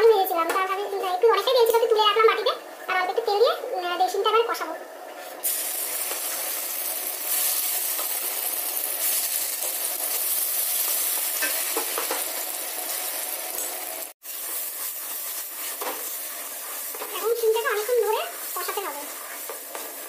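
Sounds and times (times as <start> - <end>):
paste sizzling in hot oil: 5.4 - 20.0
wooden spatula stirring: 14.3 - 20.0.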